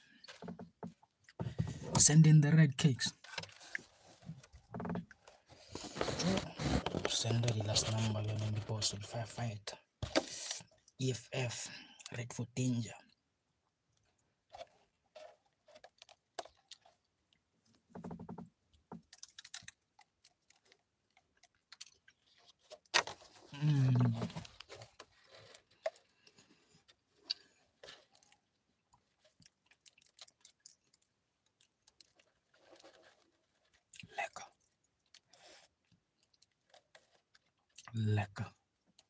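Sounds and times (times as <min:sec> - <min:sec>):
man chewing and lip-smacking: 0:00.2 - 0:01.4, 0:13.9 - 0:17.8, 0:18.7 - 0:22.9, 0:24.5 - 0:38.0.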